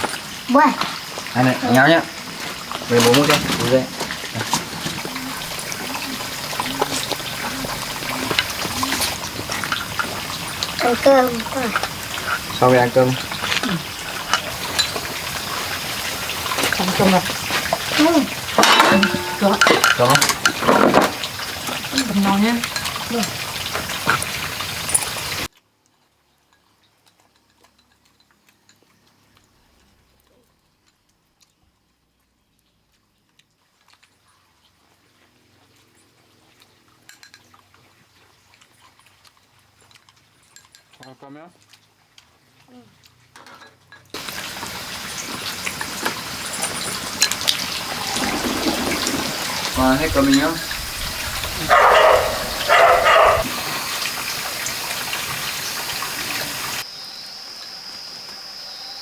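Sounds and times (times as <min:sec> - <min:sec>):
running water: 0:00.0 - 0:30.0, 0:33.7 - 0:59.0
dog barking: 0:51.6 - 0:53.7.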